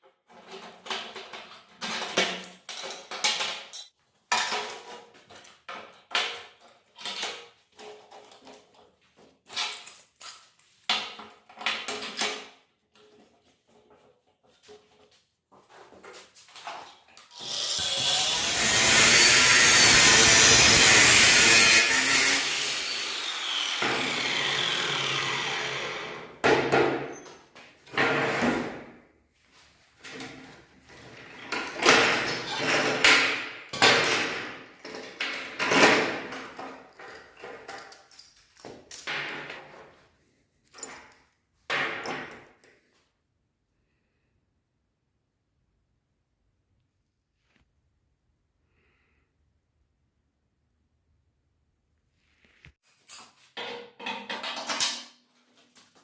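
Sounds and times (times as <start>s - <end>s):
power tool running: 17.4s - 26.3s.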